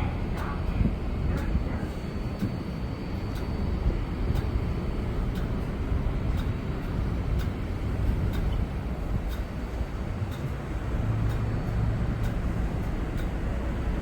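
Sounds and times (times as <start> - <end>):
subway train rumbling: 0.0 - 14.0.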